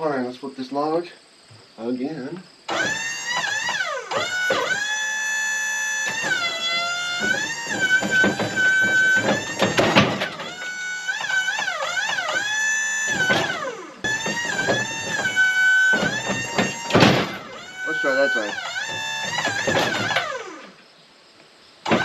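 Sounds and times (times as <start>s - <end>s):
clatter of knocks: 2.7s - 5.0s, 6.0s - 20.7s
hydraulic system whining: 2.7s - 20.8s.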